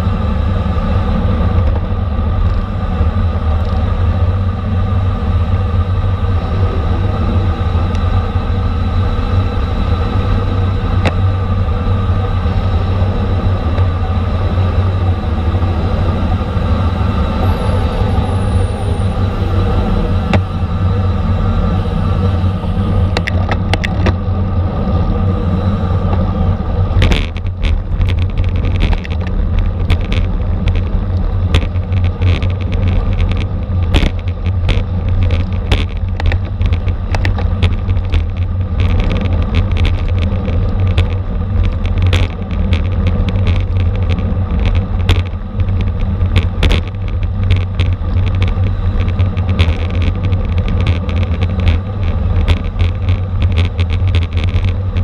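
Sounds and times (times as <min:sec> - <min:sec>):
heavy wind: 0:00.0 - 0:55.0
road rumble: 0:00.0 - 0:55.0
steady whirring hum: 0:00.0 - 0:55.0
bicycle clicks and rattles: 0:22.4 - 0:24.5, 0:26.1 - 0:55.0.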